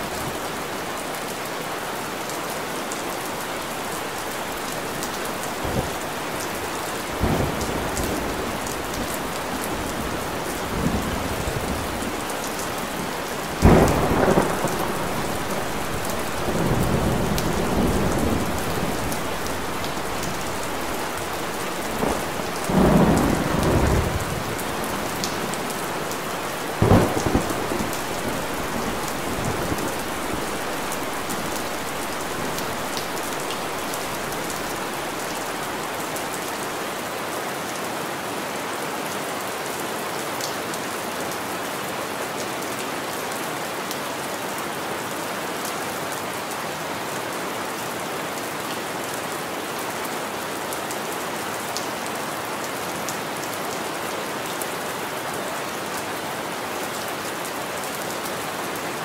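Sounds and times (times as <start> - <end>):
steady rain hiss: 0.0 - 59.0
low thunder rumbles: 7.2 - 36.4.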